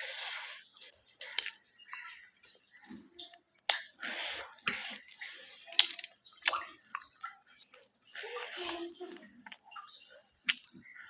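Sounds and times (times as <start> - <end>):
wet chewing: 0.1 - 11.0
slurping noodles: 3.8 - 5.6.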